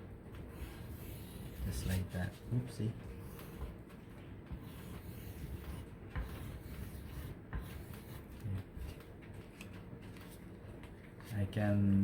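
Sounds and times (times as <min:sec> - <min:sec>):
crayon scratching on paper: 0:00.5 - 0:03.8, 0:04.5 - 0:09.1.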